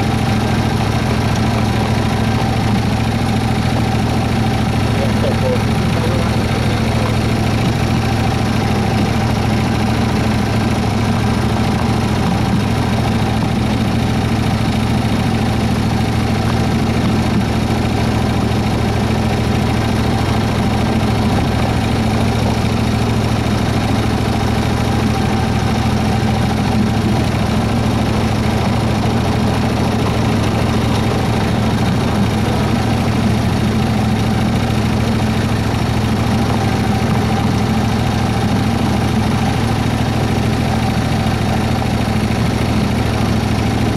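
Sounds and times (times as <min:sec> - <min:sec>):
model locomotive engine hum: 0:00.0 - 0:43.9.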